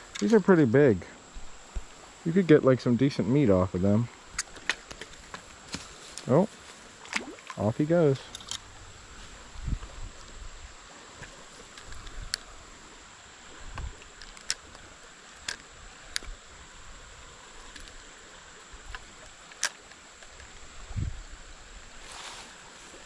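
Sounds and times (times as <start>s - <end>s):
creek water running: 0.0s - 23.0s
fishing gear clicks: 4.3s - 6.3s, 8.2s - 8.7s, 11.2s - 12.6s, 14.0s - 16.4s, 18.9s - 20.6s.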